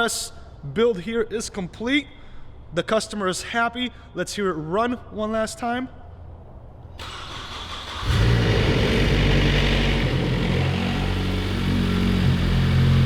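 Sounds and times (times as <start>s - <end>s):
car engine running: 8.0s - 13.0s.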